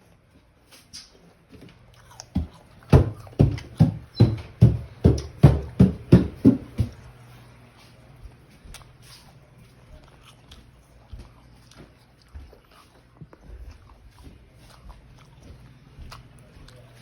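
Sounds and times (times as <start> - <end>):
apple crunchy chewing: 0.7 - 3.7, 8.3 - 17.0.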